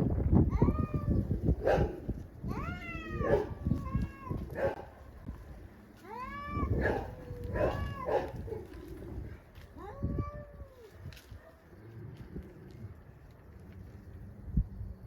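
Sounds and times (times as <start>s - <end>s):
cats yowling: 0.5s - 1.5s, 2.5s - 4.6s, 6.1s - 9.0s, 9.8s - 11.0s.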